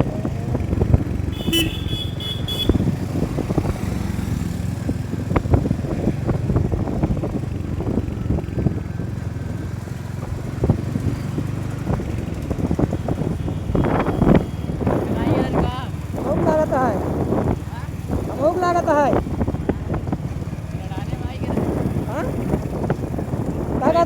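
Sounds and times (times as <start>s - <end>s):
motorcycle engine running: 0.0s - 24.0s
vehicle horn: 1.3s - 3.0s.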